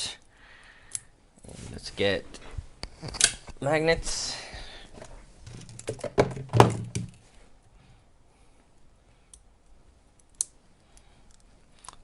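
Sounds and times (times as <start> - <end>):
objects knocking on a workbench: 5.9 - 7.1.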